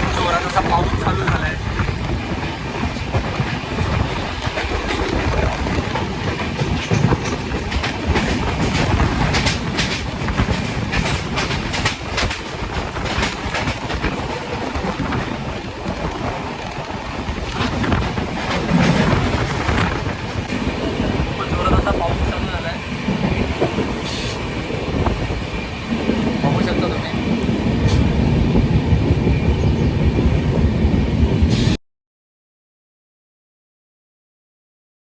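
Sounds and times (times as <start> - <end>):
wheels clicking over rail joints: 0.0 - 27.1
train coach rumbling: 0.0 - 31.8.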